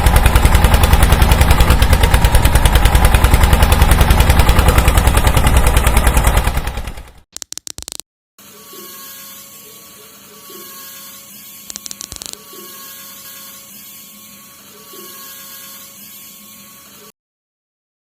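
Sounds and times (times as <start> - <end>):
rapid clicking: 7.4 - 8.0
small electric motor whirring: 7.4 - 17.2.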